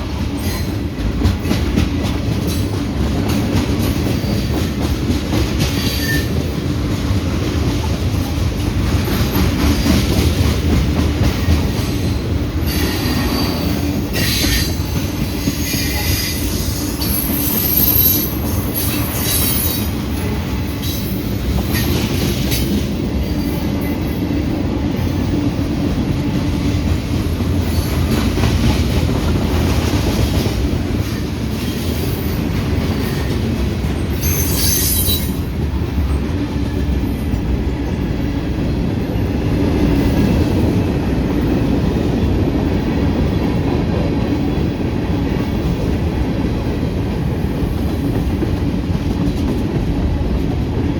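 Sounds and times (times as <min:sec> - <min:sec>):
train wheels rumbling on rails: 0:00.0 - 0:50.9
high-pitched wheel squeal: 0:15.6 - 0:19.9, 0:34.2 - 0:35.3.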